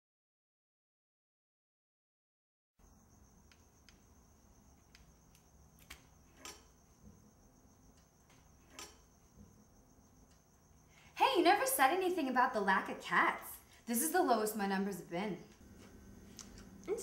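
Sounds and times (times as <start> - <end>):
small clicks: 4.8 - 6.8.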